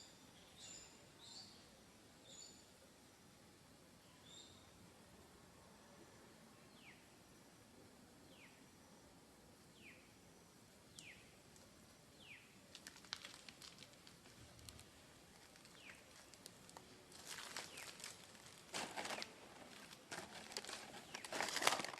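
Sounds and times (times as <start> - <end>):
crackling and rustling clicks: 12.7 - 21.9.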